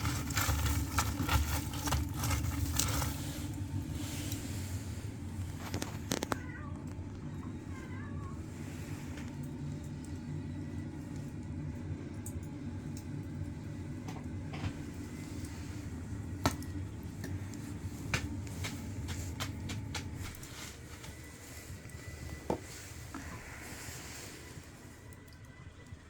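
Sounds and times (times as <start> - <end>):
low rumble of fire: 0.0 - 26.0
fire crackling and popping: 9.2 - 26.0.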